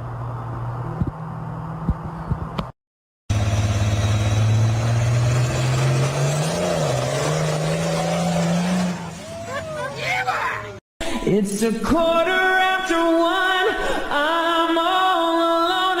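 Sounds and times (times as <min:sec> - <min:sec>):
engine revving: 0:03.3 - 0:10.8.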